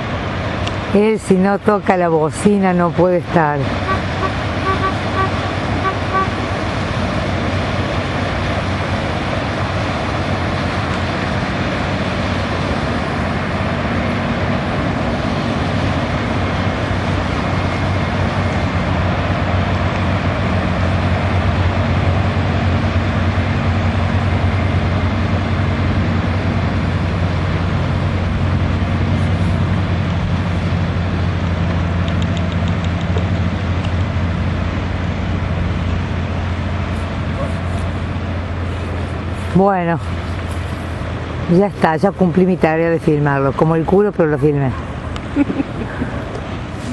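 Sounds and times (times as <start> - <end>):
constant rushing noise: 0.0 - 46.9
engine droning steadily: 0.0 - 46.9.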